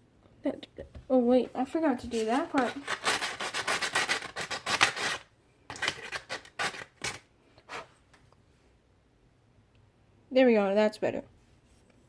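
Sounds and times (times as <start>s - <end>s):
sandpaper rubbing on metal: 2.1s - 5.2s.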